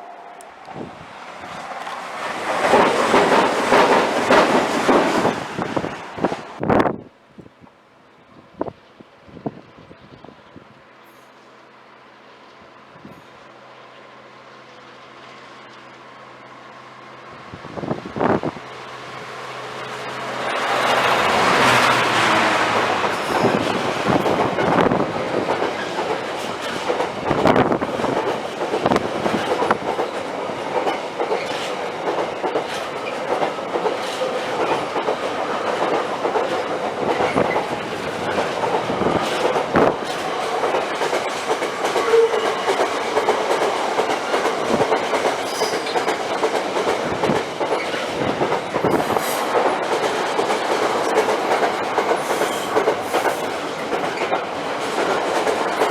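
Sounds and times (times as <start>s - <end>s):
train wheels clattering on rails: 0.0s - 6.6s, 19.7s - 55.9s.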